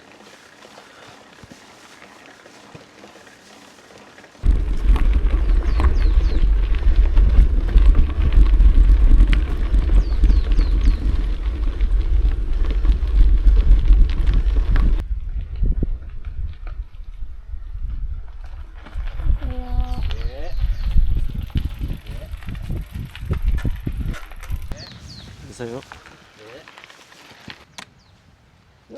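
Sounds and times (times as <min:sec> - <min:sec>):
mountain bike rolling on rough trail: 0:00.0 - 0:27.8
wind buffeting microphone: 0:04.4 - 0:26.3.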